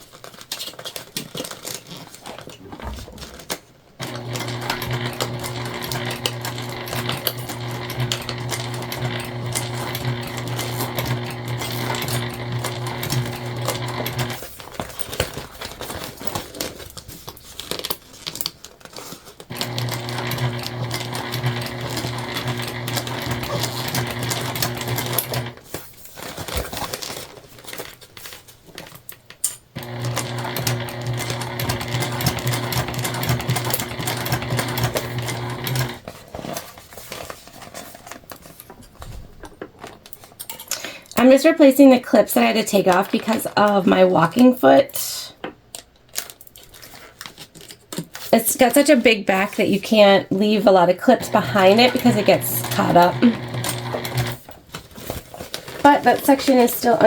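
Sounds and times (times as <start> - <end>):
sewing machine stitching: 2.7 - 16.7, 19.4 - 25.8, 29.7 - 36.0, 50.7 - 54.6, 55.7 - 57.0.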